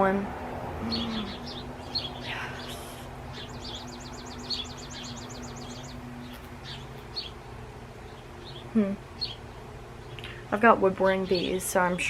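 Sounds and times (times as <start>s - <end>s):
low hum: 0.0s - 11.6s
small birds chirping: 0.4s - 12.0s
bird trilling: 0.7s - 7.4s.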